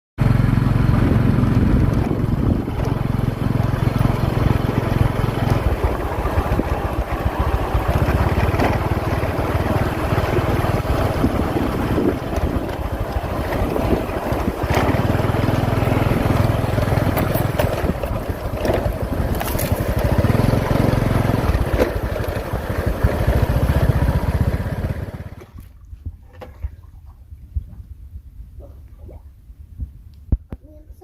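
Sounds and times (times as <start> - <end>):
small motorcycle engine: 0.2 - 25.6
wind buffeting microphone: 0.8 - 20.4, 26.0 - 30.8.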